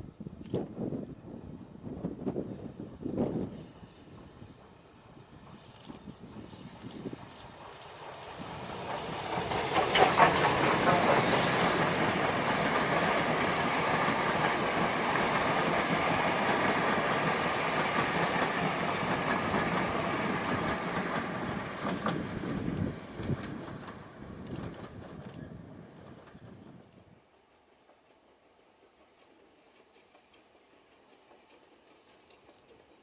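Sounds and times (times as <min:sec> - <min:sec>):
train rushing past: 0:01.2 - 0:33.0
wheels clicking over rail joints: 0:07.6 - 0:25.5.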